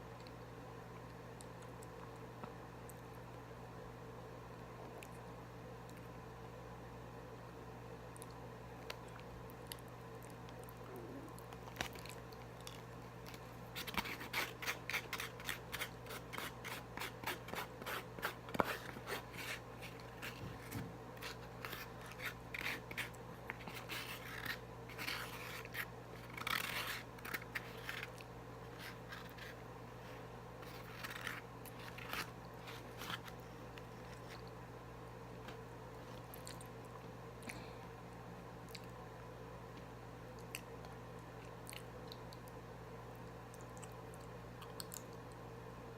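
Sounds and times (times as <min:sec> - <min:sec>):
low electrical hum: 0:00.0 - 0:45.9
eating and food-handling noises: 0:08.8 - 0:34.6.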